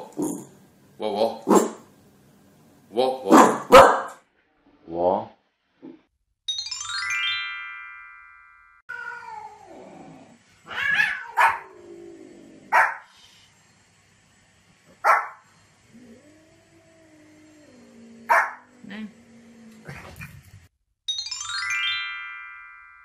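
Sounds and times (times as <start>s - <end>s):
small dog barking: 3.3s - 4.2s, 10.7s - 11.7s, 12.7s - 13.1s, 15.0s - 15.4s, 18.3s - 18.7s
cat meowing: 8.9s - 9.8s, 10.6s - 11.7s.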